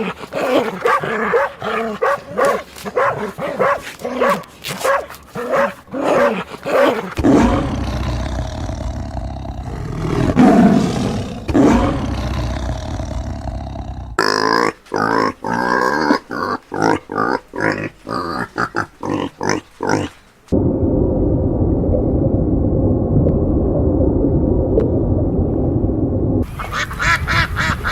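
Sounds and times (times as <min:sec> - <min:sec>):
dog barking: 0:00.0 - 0:07.1
big cat roaring: 0:05.9 - 0:20.2.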